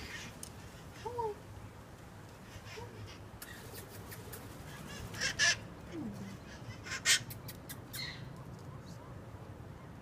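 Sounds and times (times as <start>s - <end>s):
parrots screeching squawks: 4.7s - 5.7s, 6.5s - 7.3s.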